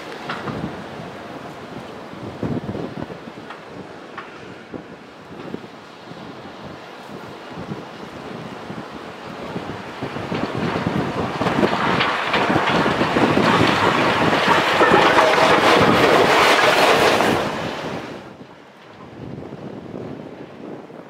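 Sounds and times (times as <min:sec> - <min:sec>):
train passing: 0:00.0 - 0:20.6
wind on microphone: 0:00.0 - 0:21.0.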